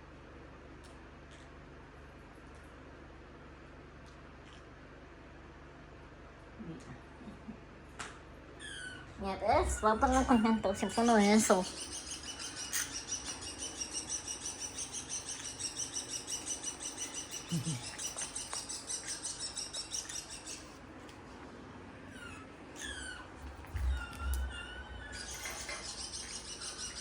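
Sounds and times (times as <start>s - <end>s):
bird chirping: 8.6s - 20.8s, 22.1s - 27.0s.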